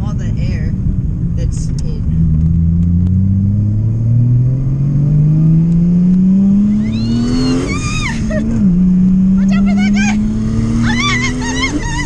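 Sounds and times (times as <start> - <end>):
car engine revving: 0.0 - 12.0
high-pitched rising tone: 2.6 - 12.0.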